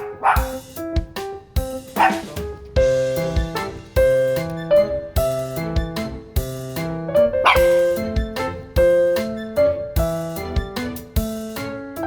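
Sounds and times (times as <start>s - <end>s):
small dog barking: 0.0s - 0.6s, 2.0s - 2.4s, 7.4s - 8.0s
piano music: 0.0s - 12.0s.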